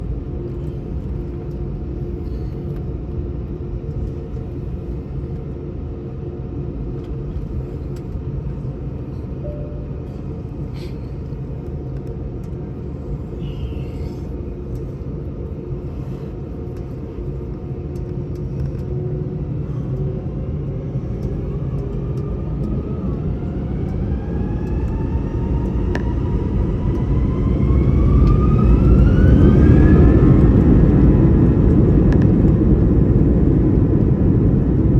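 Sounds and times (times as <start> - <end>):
jet engines rumbling and whining: 0.0 - 34.9.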